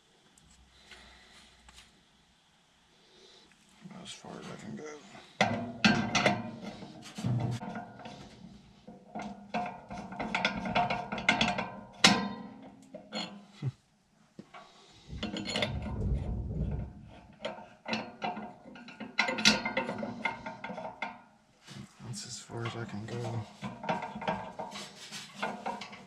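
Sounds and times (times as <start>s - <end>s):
low rumbling scraping: 15.0s - 17.5s.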